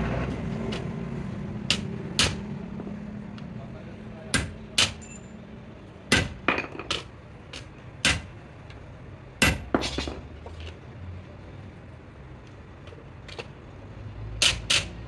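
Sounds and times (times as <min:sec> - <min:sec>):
hammer striking metal: 0:01.6 - 0:02.6, 0:04.3 - 0:05.3, 0:06.1 - 0:07.1, 0:08.0 - 0:08.4, 0:09.4 - 0:10.3.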